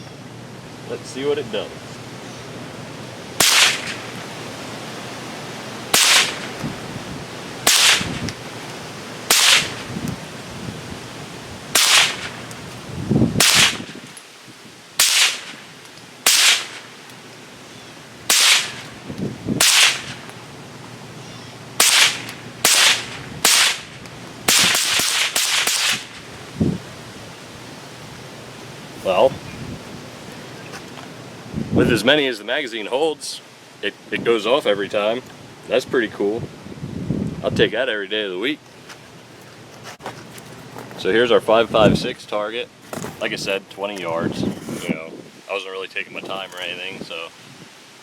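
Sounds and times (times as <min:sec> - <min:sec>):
rifle shots: 0:03.4 - 0:04.2, 0:05.9 - 0:06.6, 0:07.6 - 0:08.2, 0:09.3 - 0:09.9, 0:11.7 - 0:12.4, 0:13.4 - 0:14.1, 0:15.0 - 0:15.6, 0:16.2 - 0:16.9, 0:18.3 - 0:18.9, 0:19.6 - 0:20.3, 0:21.8 - 0:26.2.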